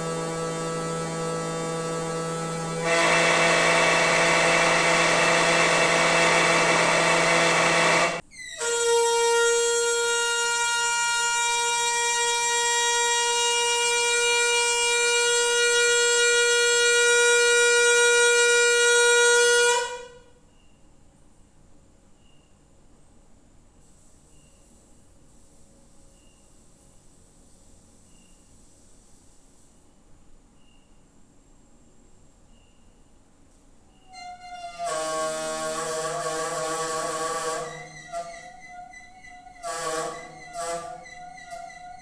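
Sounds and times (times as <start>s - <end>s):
high steady whine: 0.0s - 8.2s
water pipes humming: 0.0s - 8.2s, 34.1s - 42.0s.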